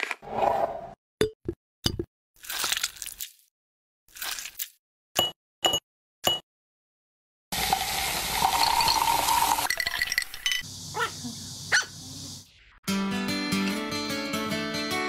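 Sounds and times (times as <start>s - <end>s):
drink fizzing hiss: 7.5s - 10.4s.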